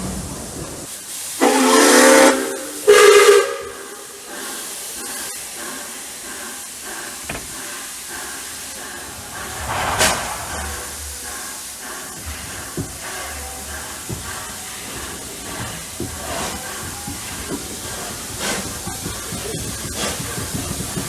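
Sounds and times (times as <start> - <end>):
steam locomotive whistle: 1.4 - 4.1.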